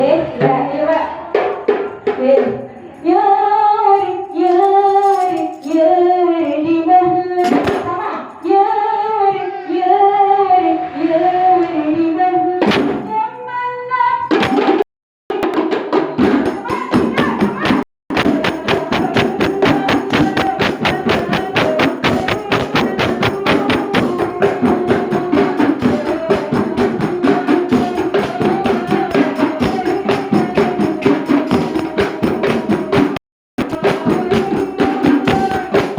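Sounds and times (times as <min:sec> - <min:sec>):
woman singing: 0:00.0 - 0:01.2, 0:02.1 - 0:14.3, 0:16.2 - 0:35.9
hand percussion beat: 0:14.3 - 0:35.9.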